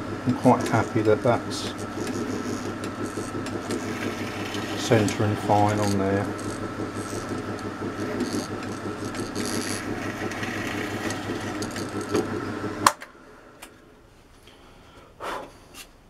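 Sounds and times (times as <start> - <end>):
drill press motor hum: 0.0 - 13.9.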